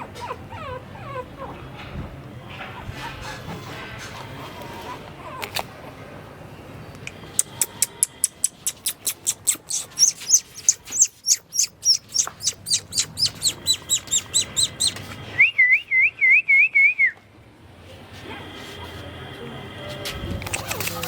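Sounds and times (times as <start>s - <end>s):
bird chirping rapidly: 7.4s - 15.5s
wavering bird whistle: 9.7s - 17.2s.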